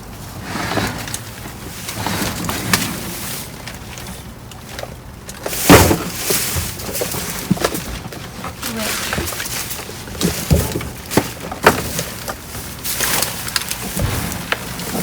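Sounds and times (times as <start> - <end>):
trash rustling and knocking: 0.0 - 15.0
loud thump: 13.9 - 15.0.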